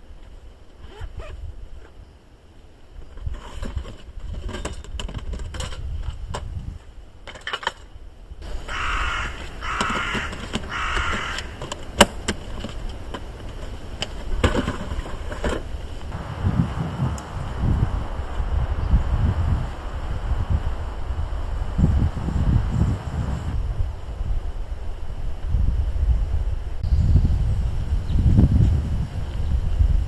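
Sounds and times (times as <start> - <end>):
crow cawing: 8.5 - 11.8
low rumble: 16.1 - 28.6.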